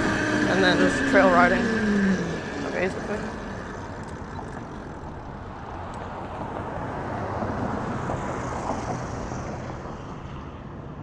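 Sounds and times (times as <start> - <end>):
mini bike engine running: 0.0 - 6.2.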